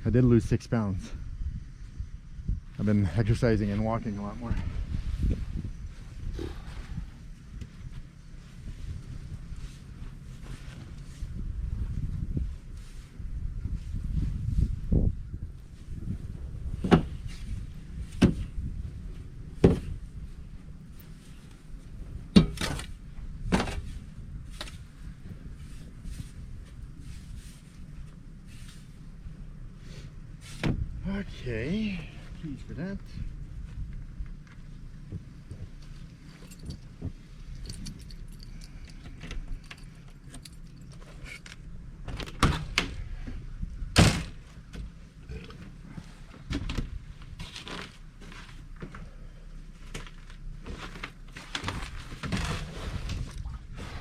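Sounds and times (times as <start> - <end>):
irregular thuds: 15.8 - 27.0, 33.5 - 38.1
keys jangling: 36.3 - 36.9, 37.5 - 41.5.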